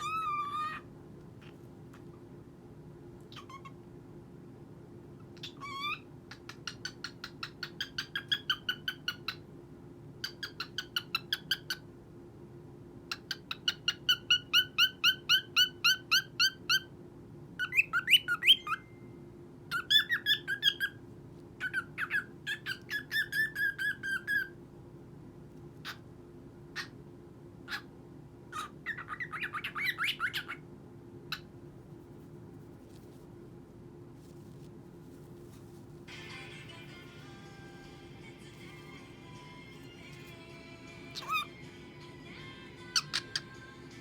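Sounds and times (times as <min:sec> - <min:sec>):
cockatiel chirping: 0:00.0 - 0:01.6, 0:03.3 - 0:03.8, 0:05.4 - 0:09.4, 0:10.2 - 0:11.8, 0:13.1 - 0:16.9, 0:17.6 - 0:18.9, 0:19.7 - 0:21.0, 0:21.6 - 0:24.6, 0:28.5 - 0:30.6, 0:41.1 - 0:41.6, 0:42.9 - 0:43.6.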